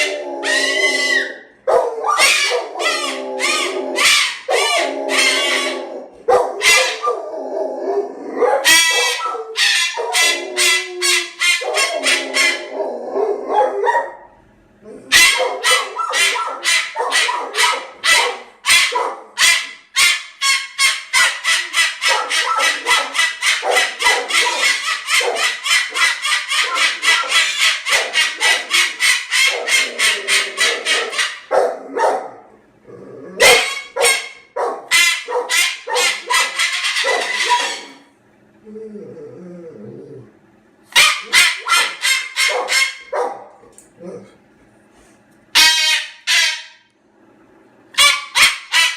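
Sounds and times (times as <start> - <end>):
cockatoo squawking: 0.0 - 7.2, 8.6 - 12.9, 15.1 - 31.6, 33.4 - 38.1, 41.0 - 43.2, 48.0 - 48.9.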